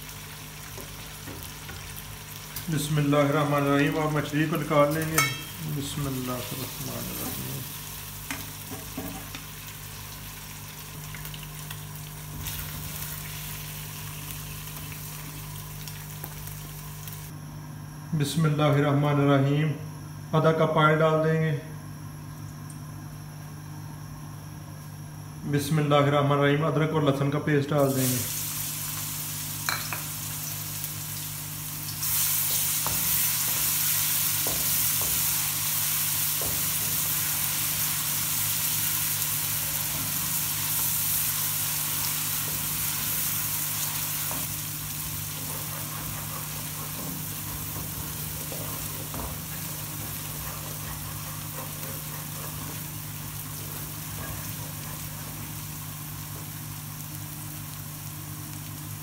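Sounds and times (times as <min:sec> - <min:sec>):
paste sizzling in oil: 0:27.8 - 0:59.0.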